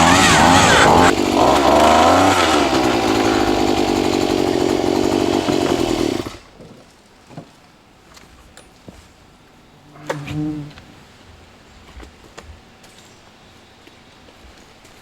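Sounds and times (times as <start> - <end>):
small engine running at high speed: 0.0 - 6.4.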